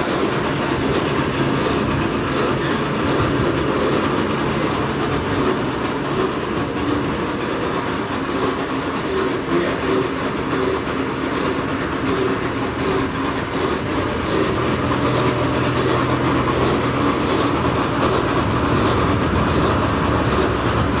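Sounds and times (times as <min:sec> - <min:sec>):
heavy machinery rattling rumble: 0:00.0 - 0:21.0
low hum: 0:12.1 - 0:21.0.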